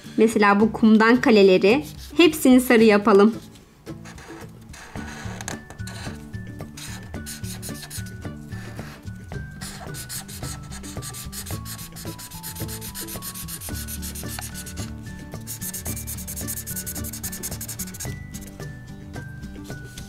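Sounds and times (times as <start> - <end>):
soft background music: 0.0 - 20.0
marker scribbling on paper: 1.7 - 2.6, 3.3 - 9.0, 9.6 - 18.6.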